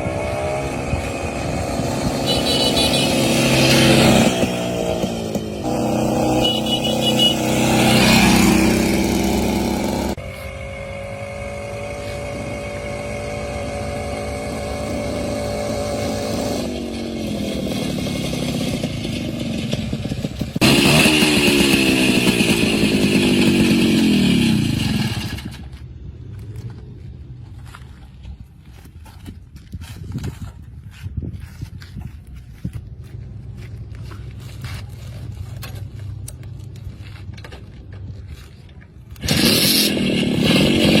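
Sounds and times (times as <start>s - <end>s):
two-stroke motorcycle engine revving: 0.0s - 25.8s, 39.1s - 41.0s.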